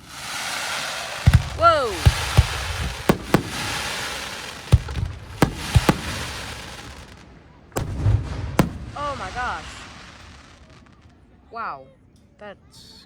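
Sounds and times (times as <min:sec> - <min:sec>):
firework shells bursting: 0:01.0 - 0:10.4.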